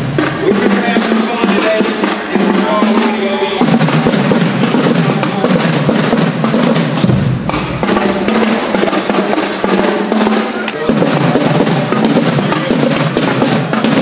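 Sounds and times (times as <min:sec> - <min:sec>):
bass drums: 0:00.0 - 0:14.0
marching band playing: 0:00.0 - 0:14.0
snare drums: 0:00.0 - 0:14.0
cymbal crash: 0:06.8 - 0:11.3.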